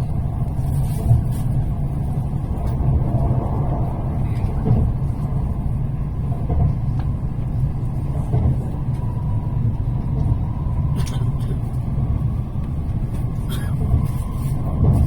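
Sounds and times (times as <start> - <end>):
train interior rumble: 0.0 - 15.0.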